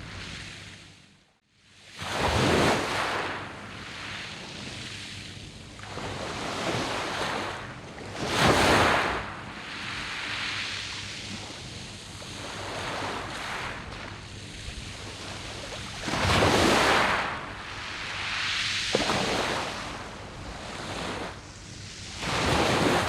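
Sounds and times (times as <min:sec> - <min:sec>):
rush of wave wash: 0:12.4 - 0:23.0.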